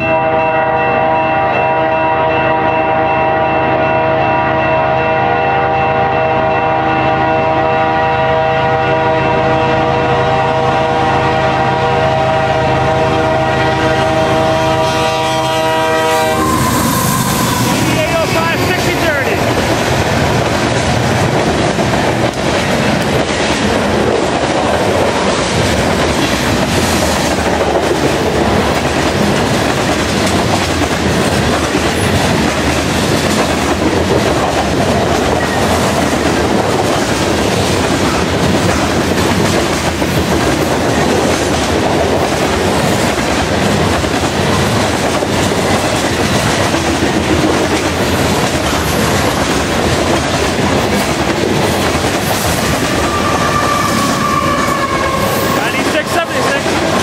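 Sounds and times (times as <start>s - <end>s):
freight train rumbling past: 0.0s - 57.0s
high wheel squeal: 16.2s - 18.9s.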